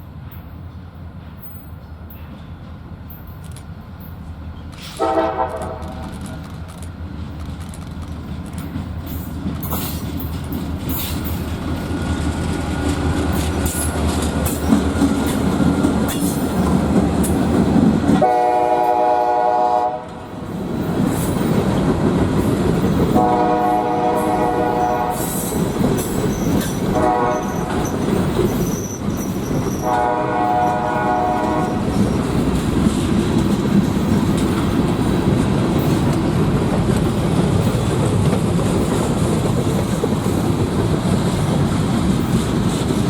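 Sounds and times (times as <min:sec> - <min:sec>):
locomotive engine and wheels rumbling: 0:00.0 - 0:43.0
locomotive air horn blasts: 0:04.9 - 0:06.0, 0:18.2 - 0:20.2, 0:23.1 - 0:25.6, 0:26.9 - 0:28.0, 0:29.8 - 0:32.0.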